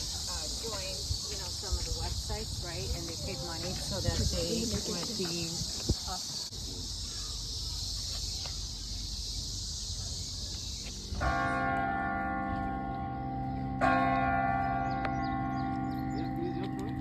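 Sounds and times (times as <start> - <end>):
insects buzzing: 0.0 - 11.4
large tower bell striking: 11.2 - 17.0.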